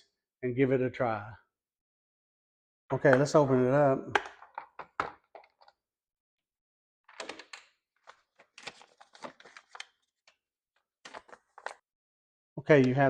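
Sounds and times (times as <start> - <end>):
packaging rustling and clattering: 7.1 - 10.3, 11.0 - 11.8.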